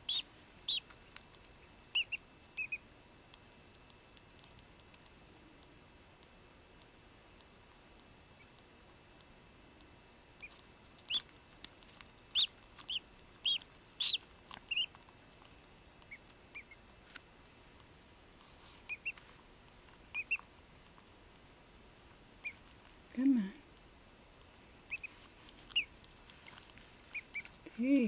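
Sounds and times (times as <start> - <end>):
duckling peeping: 0.0 - 2.9, 8.3 - 8.7, 10.3 - 15.2, 16.0 - 16.9, 18.8 - 19.3, 20.0 - 20.5, 22.4 - 22.8, 24.8 - 27.8.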